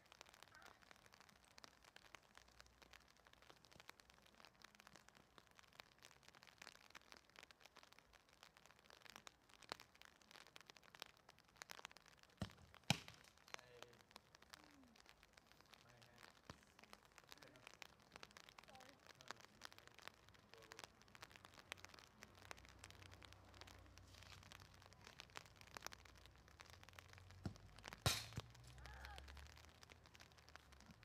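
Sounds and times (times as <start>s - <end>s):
light rain ticking: 0.0s - 31.0s
soccer ball being kicked: 12.4s - 13.2s, 27.4s - 28.5s.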